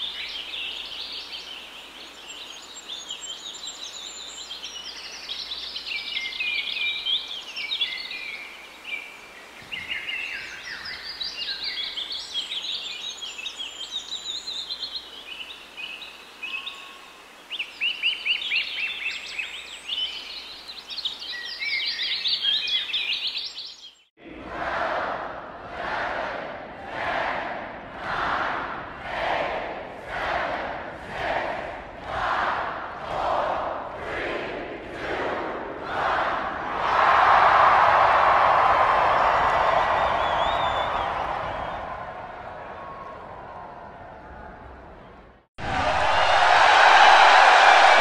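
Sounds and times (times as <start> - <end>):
background hiss: 0.0 - 24.0
songbirds singing: 0.0 - 24.2.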